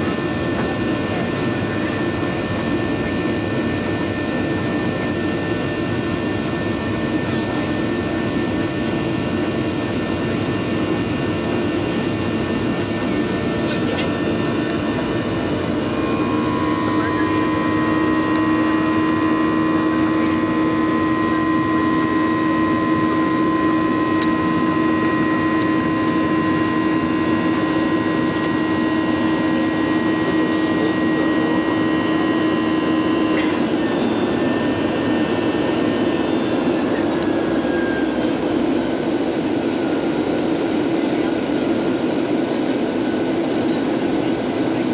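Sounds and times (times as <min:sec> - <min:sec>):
high engine whine: 0:00.0 - 0:44.9
jet engine roar in cabin: 0:00.0 - 0:44.9.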